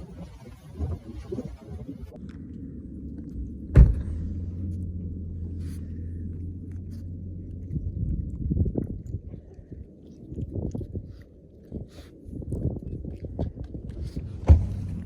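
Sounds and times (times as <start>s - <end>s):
low rumbling: 0.0s - 15.0s
steady low hum: 0.0s - 15.0s
loud thump: 3.7s - 4.7s, 14.4s - 15.0s.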